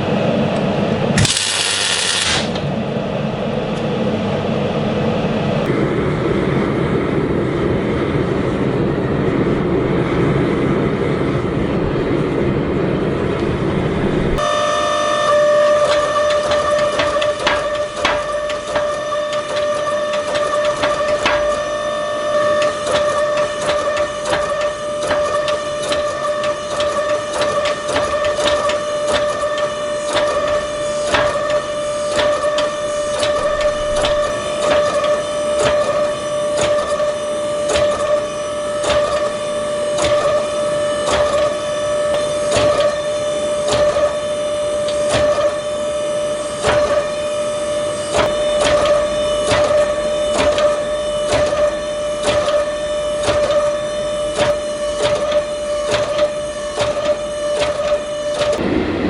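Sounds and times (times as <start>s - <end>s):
steady machine hum: 0.0s - 59.0s.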